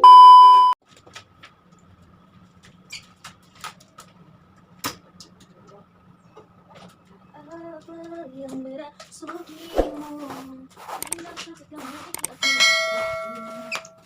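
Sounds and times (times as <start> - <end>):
loud electronic beep: 0.0 - 0.8
faint clicks and ticks: 11.0 - 12.4.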